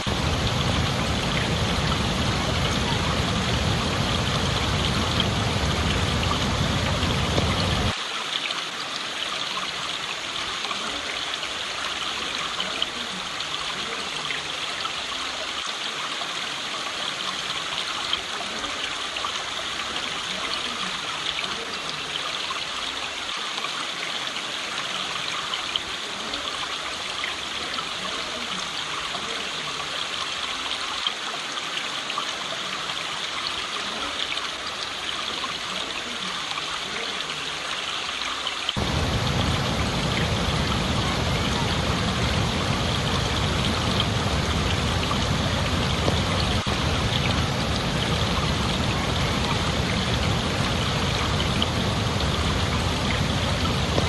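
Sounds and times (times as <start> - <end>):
heavy low rumble: 0.0 - 7.9, 38.8 - 54.0
stream water flowing: 0.0 - 54.0.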